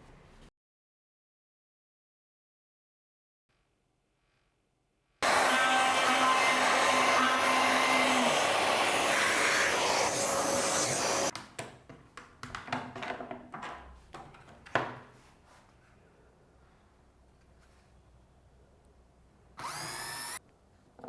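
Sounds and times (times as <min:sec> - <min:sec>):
palm router running: 0:05.2 - 0:11.3.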